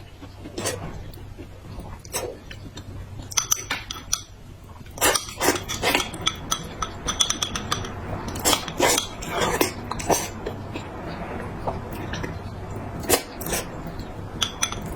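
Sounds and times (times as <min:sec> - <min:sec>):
scrapes or slurps: 0:00.0 - 0:02.8, 0:05.0 - 0:06.2, 0:08.3 - 0:14.9
utensils clinking against dishes: 0:03.3 - 0:04.3, 0:05.0 - 0:10.4, 0:13.0 - 0:14.9.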